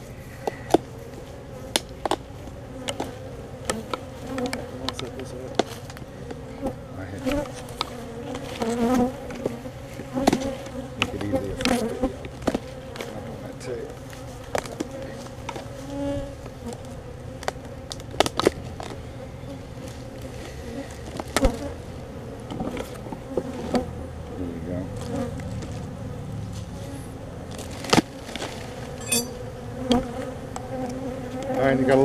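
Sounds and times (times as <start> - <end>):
honeybees buzzing: 0.0 - 32.0.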